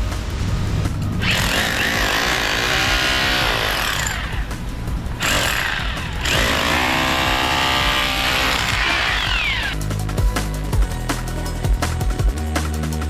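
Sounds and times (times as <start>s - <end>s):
power tool running: 1.2s - 9.8s.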